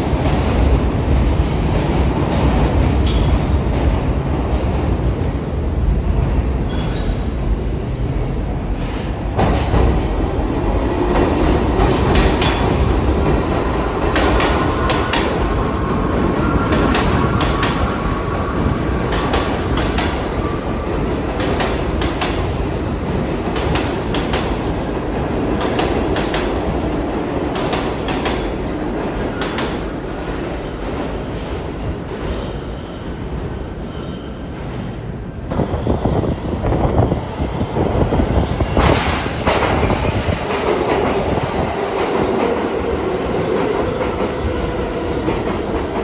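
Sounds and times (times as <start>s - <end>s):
subway train rumble: 0.0s - 46.0s
wheels clacking over rail joints: 11.1s - 15.6s.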